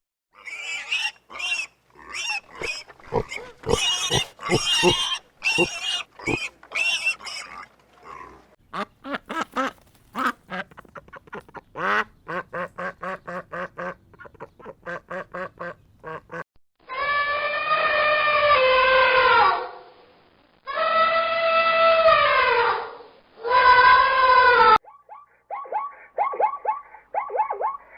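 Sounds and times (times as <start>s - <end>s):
ducks quacking: 2.0s - 7.4s, 8.1s - 16.4s
long falling animal calls: 2.0s - 8.4s, 16.9s - 19.9s, 20.7s - 27.9s.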